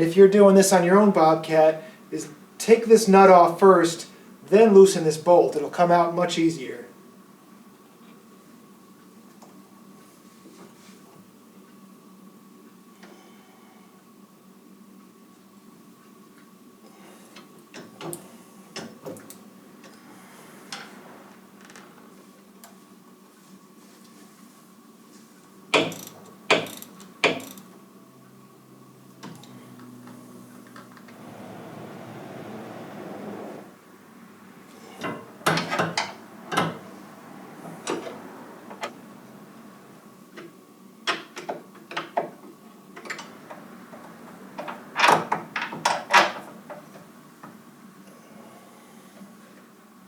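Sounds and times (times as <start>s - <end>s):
sharp knocks of hand tools: 25.7s - 27.6s.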